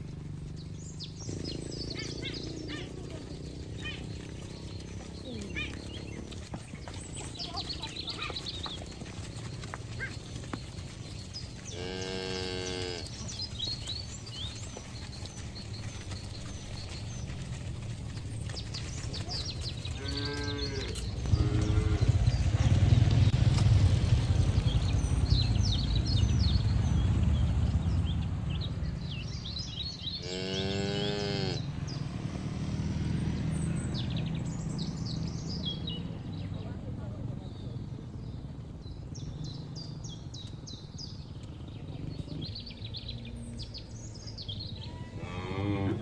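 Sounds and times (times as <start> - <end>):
small birds chirping: 0.0 - 46.0
cattle mooing: 11.7 - 13.2, 20.0 - 22.6, 30.2 - 31.7, 45.0 - 46.0
low rumble: 16.4 - 30.2.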